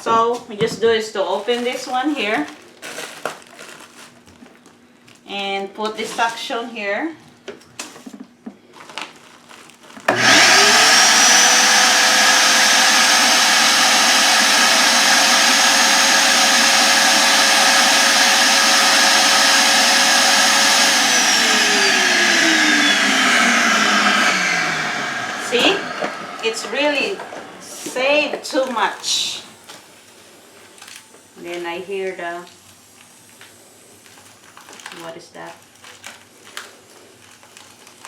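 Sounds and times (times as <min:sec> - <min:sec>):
vacuum cleaner motor whining: 0:10.0 - 0:29.8.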